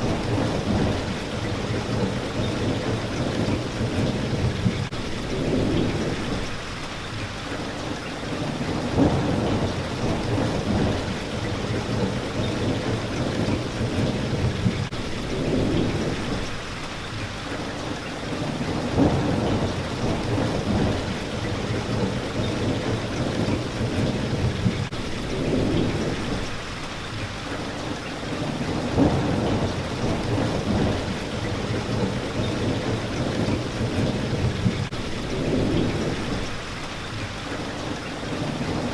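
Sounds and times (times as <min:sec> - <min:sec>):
low rolling thunder: 0:00.0 - 0:06.6, 0:08.3 - 0:16.6, 0:18.3 - 0:26.6, 0:28.3 - 0:36.7
heavy rain on a window: 0:00.0 - 0:38.9
sharp thunder crack: 0:08.8 - 0:11.3, 0:18.8 - 0:21.3, 0:28.8 - 0:34.8.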